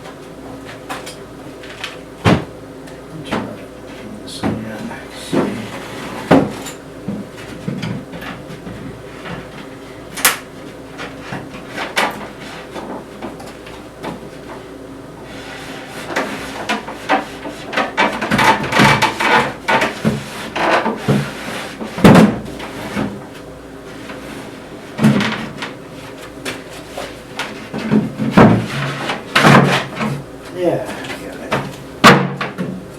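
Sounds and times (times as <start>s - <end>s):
wood knocking and thumping: 2.2s - 2.5s
wood scraping on wood: 5.3s - 6.6s.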